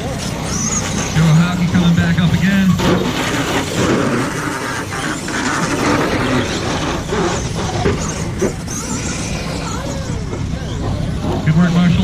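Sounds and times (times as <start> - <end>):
rc truck motors whining: 0.0 - 12.0.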